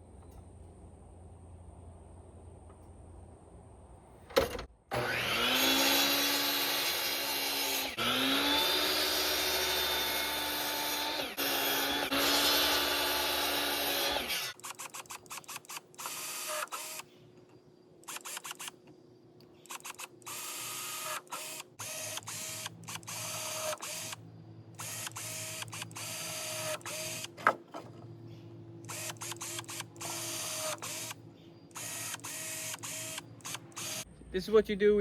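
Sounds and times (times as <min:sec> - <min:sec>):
low steady hum: 0:00.0 - 0:04.6
cordless drill bursts: 0:04.9 - 0:17.1, 0:18.0 - 0:18.8, 0:19.6 - 0:24.2, 0:24.8 - 0:27.4, 0:28.8 - 0:34.1.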